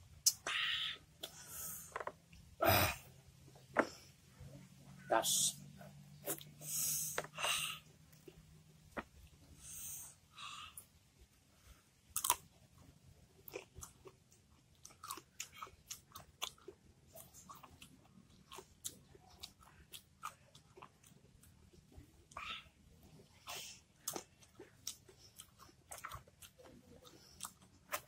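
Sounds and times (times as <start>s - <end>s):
crunchy chewing: 12.1s - 12.5s, 13.4s - 28.0s.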